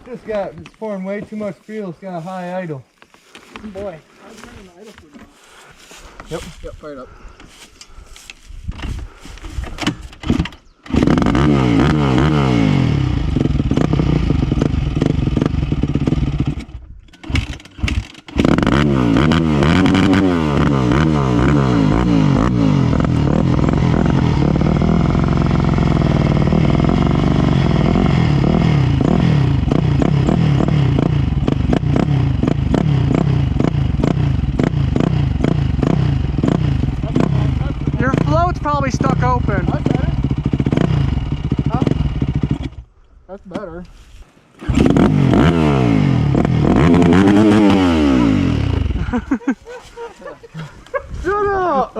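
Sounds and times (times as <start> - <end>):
dirt bike engine revving: 8.7 - 42.9, 44.6 - 51.9.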